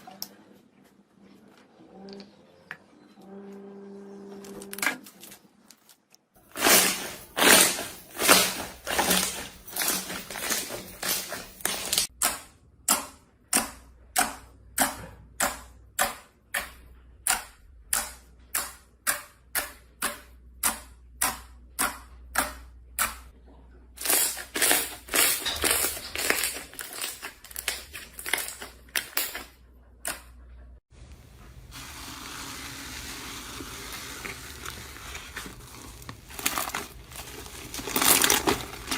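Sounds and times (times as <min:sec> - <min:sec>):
crisp crunches: 0:24.0 - 0:28.7, 0:32.4 - 0:38.9
soft steady crinkling: 0:31.0 - 0:38.9.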